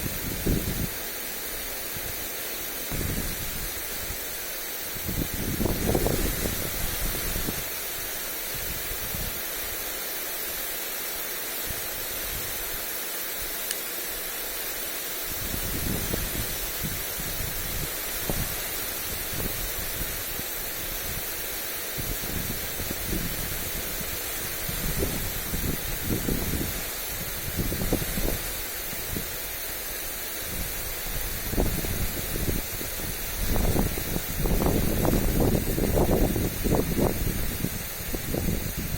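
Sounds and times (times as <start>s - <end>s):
wind buffeting microphone: 0.0s - 1.0s, 2.9s - 3.8s, 5.0s - 7.7s, 15.3s - 21.3s, 21.9s - 29.4s, 30.4s - 38.9s
lawn sprinkler spray hissing: 0.0s - 38.9s.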